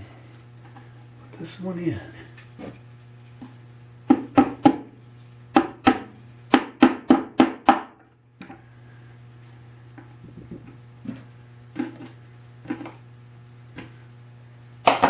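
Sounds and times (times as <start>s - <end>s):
hammer tapping on wood: 4.1s - 4.9s.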